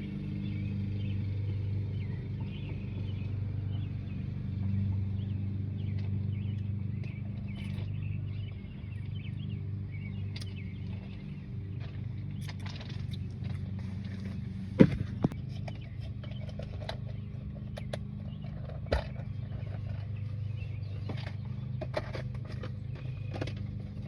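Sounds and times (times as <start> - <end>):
low engine hum: 0.0 - 24.0
small birds chirping: 0.0 - 24.0.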